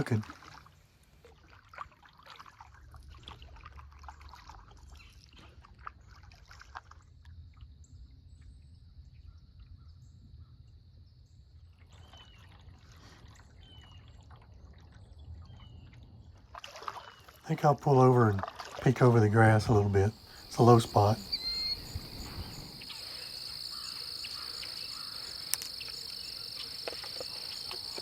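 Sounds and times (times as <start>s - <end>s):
paddle pulling through water: 0.0s - 7.2s, 11.9s - 28.0s
water dripping off paddle: 16.5s - 28.0s
bird chirps: 19.4s - 28.0s.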